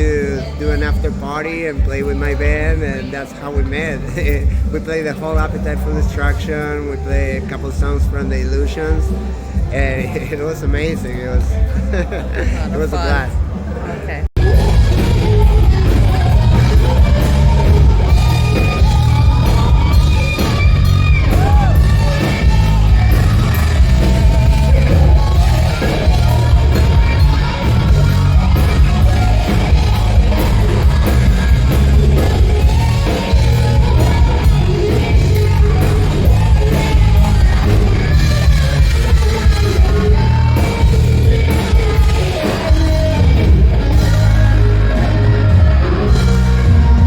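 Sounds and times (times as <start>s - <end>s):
singer singing and shouting: 0.0s - 47.0s
hard rock band playing: 14.4s - 47.0s.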